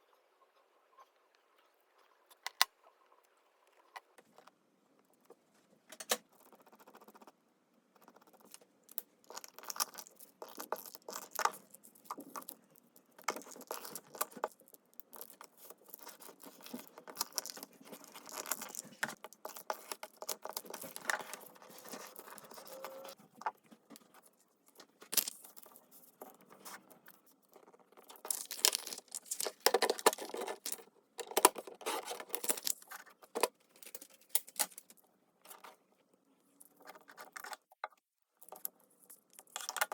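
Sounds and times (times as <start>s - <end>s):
paper rustling and scraping: 16.3s - 23.2s.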